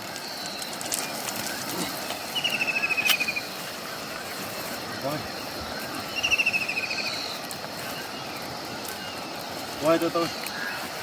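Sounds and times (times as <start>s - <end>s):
faint insect drone: 0.0s - 11.0s
rushing river hiss: 0.0s - 11.0s
rapid chirping trill: 5.4s - 10.2s.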